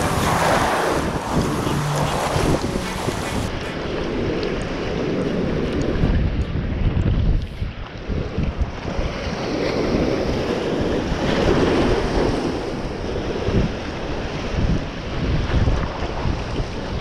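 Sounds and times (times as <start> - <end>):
surf washing over rocks: 0.0 - 6.0
wind buffeting microphone: 0.0 - 17.0.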